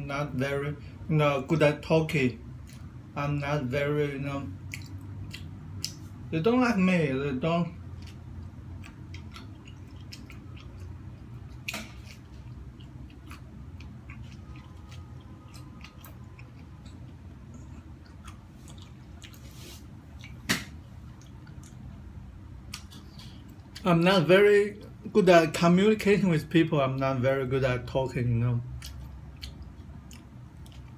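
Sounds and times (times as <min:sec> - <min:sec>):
low steady hum: 0:00.0 - 0:30.9
person chewing corn crunching: 0:02.5 - 0:03.0, 0:04.4 - 0:06.2, 0:07.8 - 0:22.0, 0:28.6 - 0:30.9.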